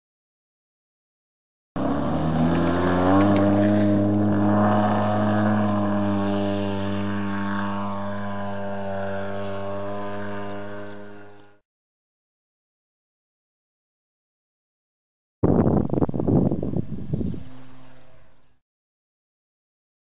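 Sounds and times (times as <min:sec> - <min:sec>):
model aircraft engine running: 0:01.8 - 0:11.6, 0:15.7 - 0:18.6.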